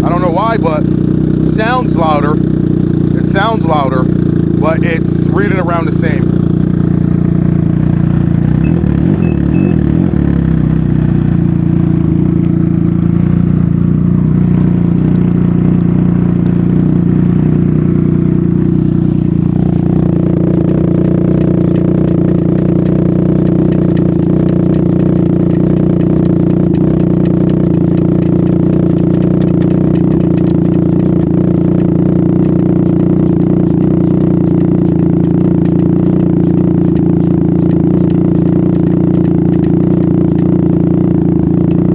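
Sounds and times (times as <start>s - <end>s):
loud engine idling: 0.0s - 41.9s.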